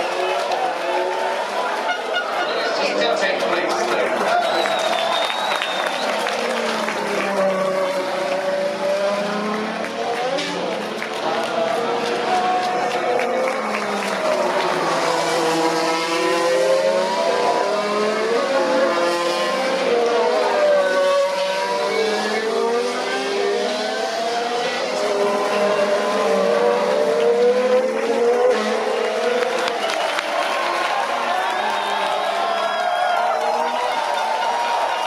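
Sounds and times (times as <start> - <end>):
racing car engines accelerating: 0.0 - 35.0.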